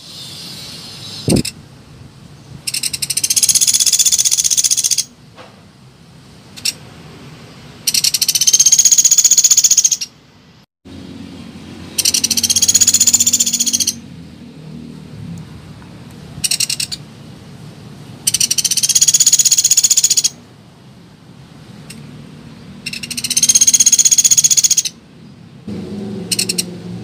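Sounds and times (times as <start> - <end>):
woodpecker rattling calls: 2.7 - 5.1, 6.6 - 6.8, 7.8 - 10.1, 11.9 - 14.0, 16.4 - 17.0, 18.2 - 20.4, 22.8 - 25.0, 26.3 - 26.7.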